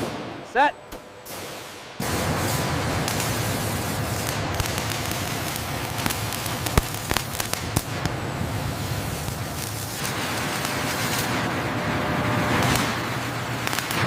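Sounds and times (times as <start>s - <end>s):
sharp cracks: 0.0s - 8.2s, 8.8s - 11.6s, 12.4s - 14.0s
steady hiss: 1.2s - 11.5s.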